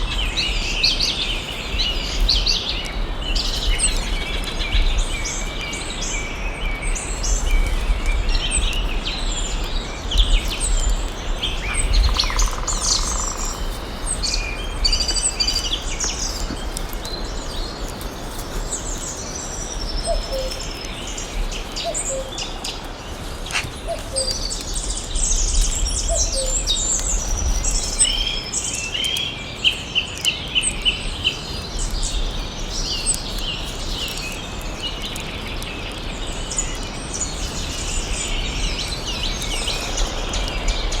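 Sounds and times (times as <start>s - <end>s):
birds chirping and singing: 0.0s - 41.0s.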